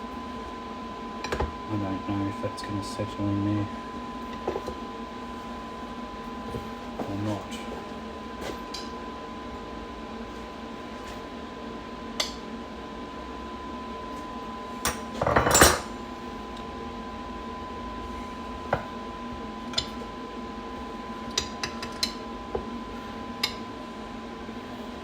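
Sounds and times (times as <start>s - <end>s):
steady hum: 0.0s - 25.0s
metal tools clinking on workbench: 15.2s - 15.9s.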